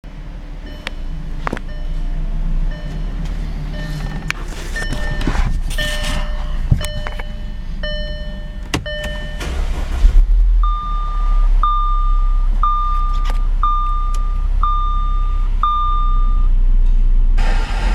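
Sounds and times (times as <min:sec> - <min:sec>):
car engine running: 0:00.0 - 0:17.9
short electronic beeps: 0:01.7 - 0:02.0, 0:02.7 - 0:09.6, 0:10.6 - 0:16.5.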